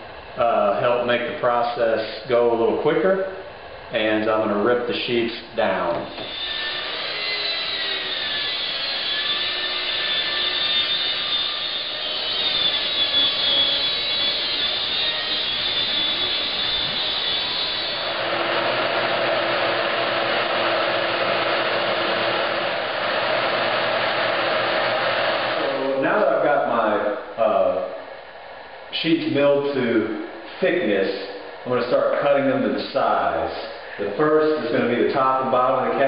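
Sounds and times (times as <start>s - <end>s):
steady machine hum: 0.0s - 36.0s
power saw cutting plywood: 6.1s - 26.0s.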